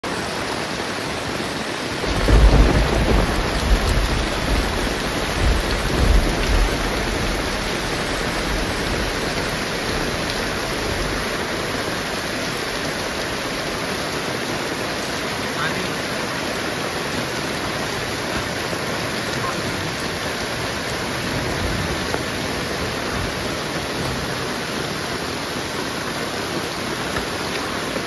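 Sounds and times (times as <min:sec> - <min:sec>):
heavy rain pouring: 0:00.0 - 0:28.0
deep rumble of thunder: 0:02.0 - 0:11.7, 0:21.0 - 0:24.6.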